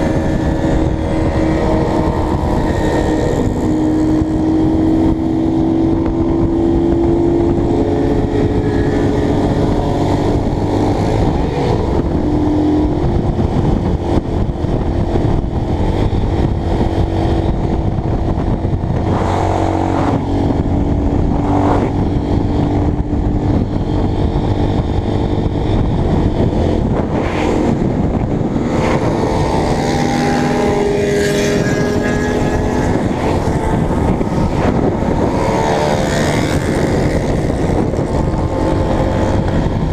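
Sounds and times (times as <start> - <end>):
motorcycle engine revving: 0.0 - 39.9
wind noise on microphone: 0.0 - 39.9.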